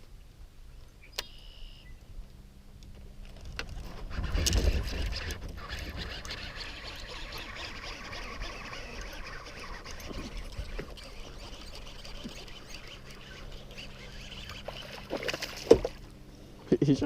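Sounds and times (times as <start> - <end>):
fishing reel clicking: 4.1 - 15.2.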